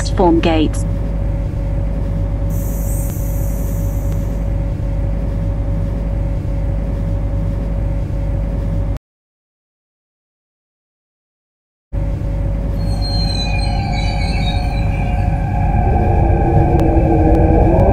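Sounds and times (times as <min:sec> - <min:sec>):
train electric hum and whine: 0:00.0 - 0:09.0, 0:12.0 - 0:17.9
brief high hiss: 0:02.5 - 0:04.4.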